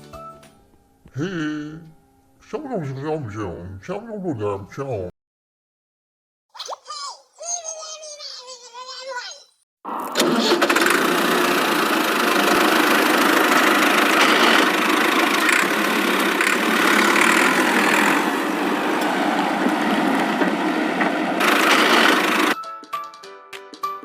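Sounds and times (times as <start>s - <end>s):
motor buzzing roughly: 10.6s - 18.3s, 21.4s - 22.6s.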